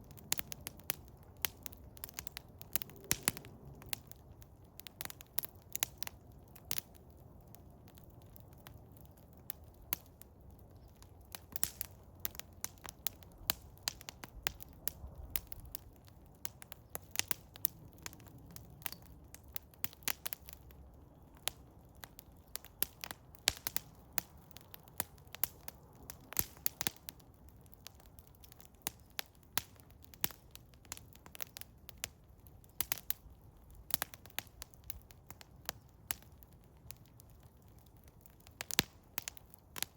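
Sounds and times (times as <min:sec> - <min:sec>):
low rush of flame: 0:00.0 - 0:10.0
wood fire crackling and popping: 0:00.0 - 0:39.9.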